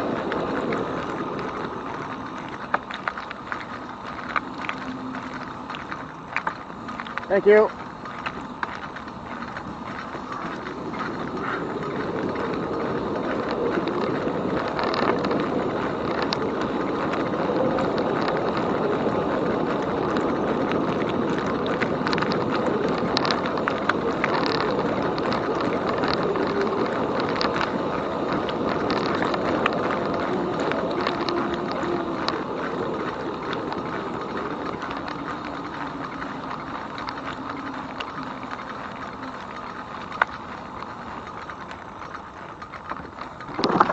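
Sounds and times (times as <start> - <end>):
bike clicks and rattles: 0.0 - 43.9
tyre and wind noise: 0.0 - 43.9.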